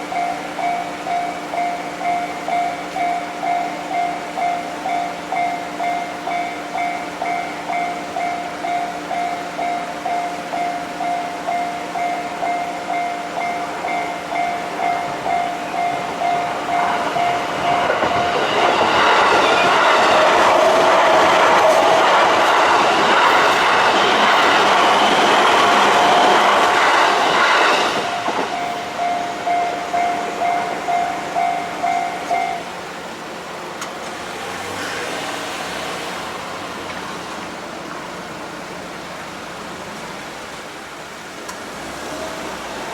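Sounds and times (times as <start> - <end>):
level crossing alarm bell: 0.0 - 32.8
train wheels clattering: 11.0 - 32.7.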